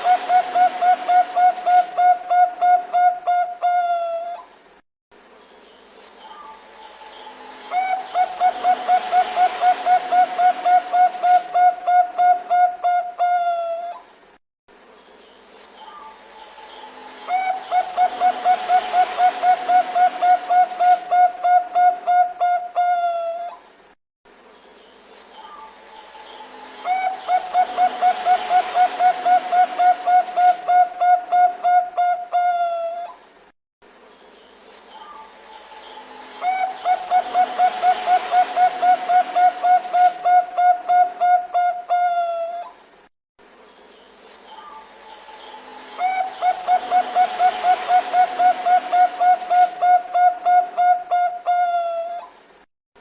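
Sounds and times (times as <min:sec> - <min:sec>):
dove cooing: 0:00.0 - 0:04.5, 0:07.2 - 0:14.1, 0:16.8 - 0:23.6, 0:25.4 - 0:33.2, 0:35.8 - 0:42.8, 0:44.6 - 0:52.3.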